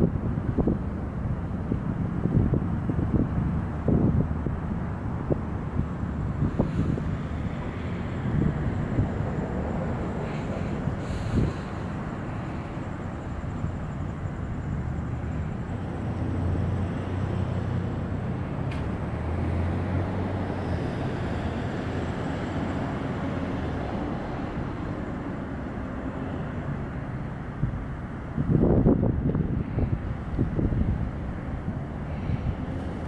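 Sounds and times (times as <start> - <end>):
low engine hum: 0.0 - 33.0
traffic rumble: 0.0 - 33.0.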